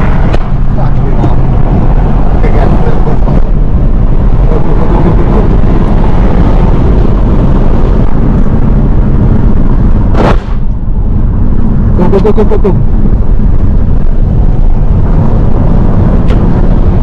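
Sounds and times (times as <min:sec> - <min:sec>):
heavy vehicle rumble: 0:00.0 - 0:17.0
sharp blast: 0:10.1 - 0:10.8.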